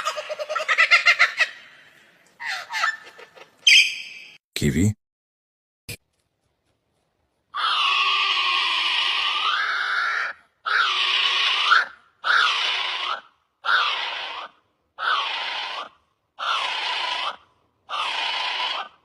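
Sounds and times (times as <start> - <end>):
kiwi shrill calls: 2.4 - 4.4.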